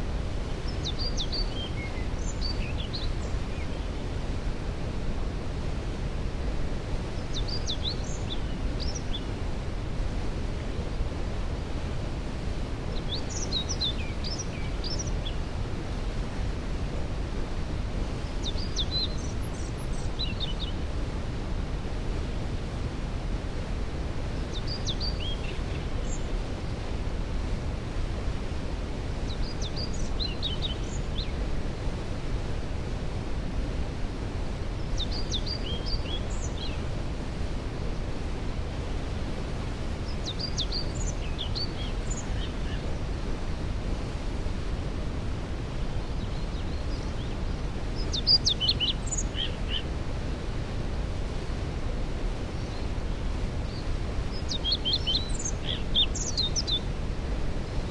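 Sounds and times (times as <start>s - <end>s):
songbird singing: 0.6s - 4.1s, 7.1s - 9.4s, 12.9s - 15.6s, 18.1s - 20.8s, 24.3s - 26.8s, 29.1s - 31.4s, 34.8s - 37.0s, 40.0s - 43.0s, 45.9s - 49.9s, 52.5s - 56.9s.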